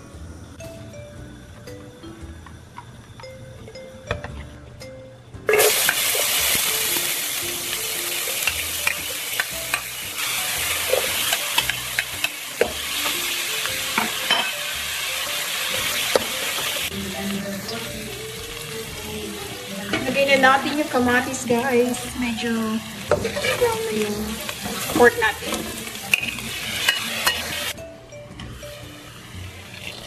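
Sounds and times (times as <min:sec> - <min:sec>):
food sizzling in hot oil: 0:05.5 - 0:27.8, 0:28.5 - 0:30.0.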